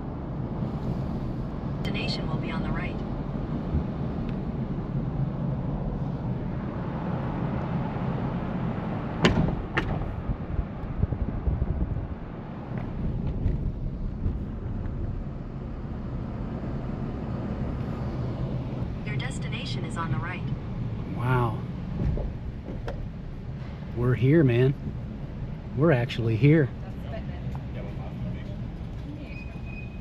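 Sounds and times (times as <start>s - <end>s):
car road and engine noise: 0.0s - 30.0s
sharp knocks: 9.2s - 10.1s.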